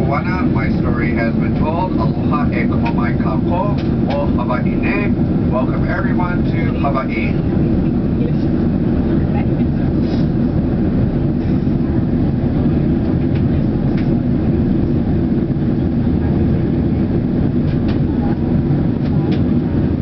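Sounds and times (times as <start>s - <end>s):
airliner cabin rumble: 0.0s - 20.0s.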